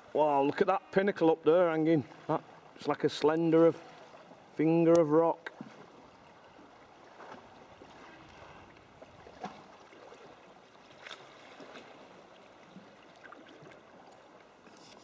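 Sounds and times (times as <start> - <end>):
water lapping and dripping: 0.0 - 15.0
faint splashes and knocks: 5.4 - 15.0.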